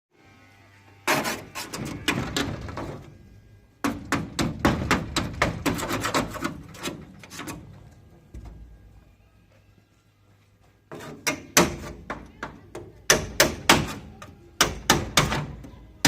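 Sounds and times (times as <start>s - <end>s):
hammer strikes: 3.8s - 6.6s, 11.0s - 15.7s.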